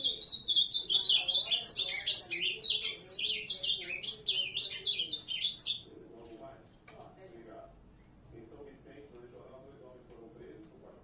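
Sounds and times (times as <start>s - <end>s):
bird singing warbling phrase: 0.0s - 5.9s.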